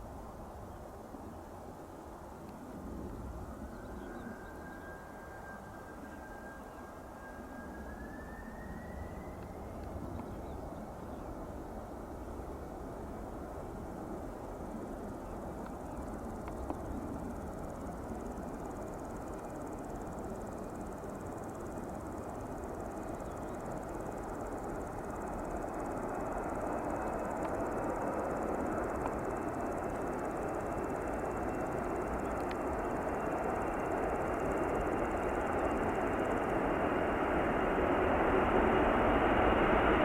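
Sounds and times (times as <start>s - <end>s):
jet engines rushing: 0.1s - 40.0s
high jet whine rising: 17.3s - 40.0s.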